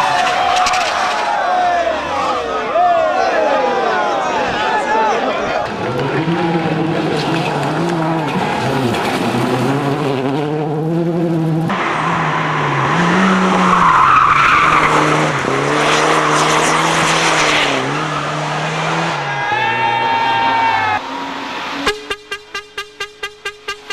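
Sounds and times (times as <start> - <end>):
tyres skidding: 0.0 - 22.6
racing car engine revving: 5.6 - 22.1.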